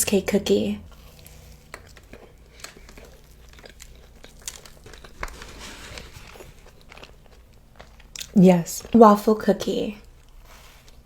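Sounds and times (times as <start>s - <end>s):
food packaging crinkling: 1.1s - 9.0s
small clicks and crackles: 1.2s - 8.0s.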